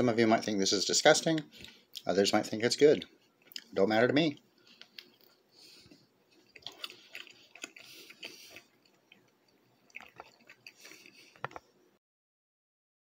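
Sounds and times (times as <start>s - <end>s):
person chewing pastry: 3.1s - 3.8s, 4.4s - 11.8s.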